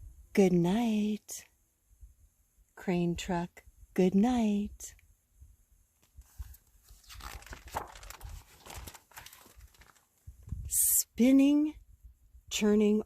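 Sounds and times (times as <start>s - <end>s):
paper rustling page turned: 6.0s - 10.3s.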